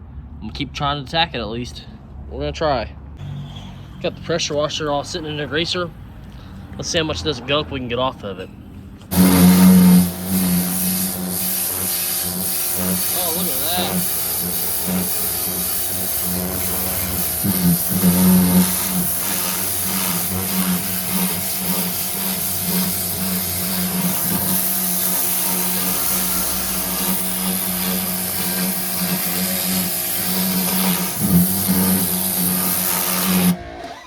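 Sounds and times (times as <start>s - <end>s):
motor hum: 8.9s - 34.0s
pressure washer water jet hissing: 9.1s - 34.0s.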